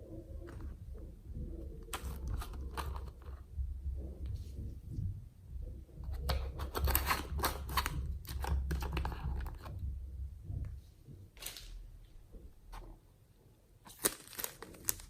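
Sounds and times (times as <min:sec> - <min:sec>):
low handling rumble: 0:00.0 - 0:06.4
slime crackling and popping: 0:13.9 - 0:15.0.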